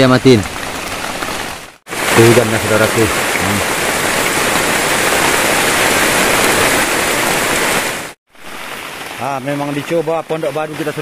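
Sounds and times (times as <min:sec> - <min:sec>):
heavy rain on a roof: 0:00.0 - 0:11.0.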